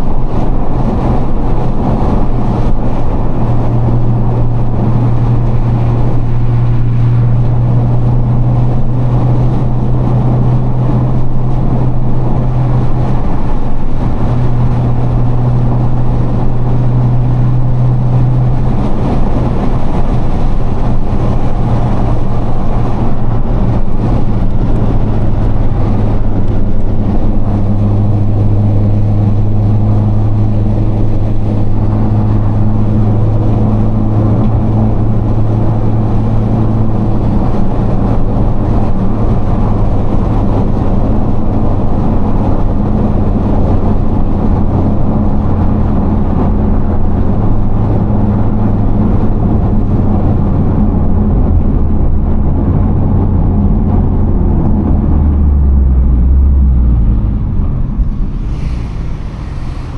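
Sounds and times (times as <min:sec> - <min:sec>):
car engine droning: 0:00.0 - 0:59.9
road and wind noise: 0:00.0 - 0:59.9.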